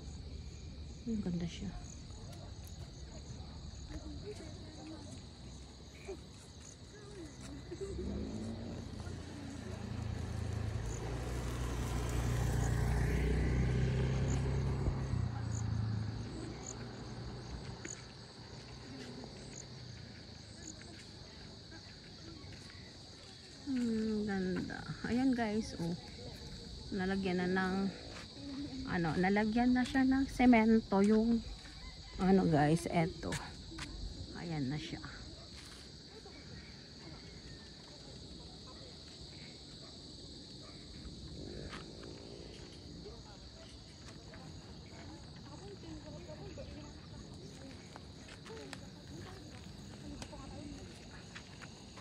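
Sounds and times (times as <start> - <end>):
crickets droning: 0.0 - 52.0
faint high insect chirp: 0.0 - 52.0
insects trilling: 0.0 - 52.0.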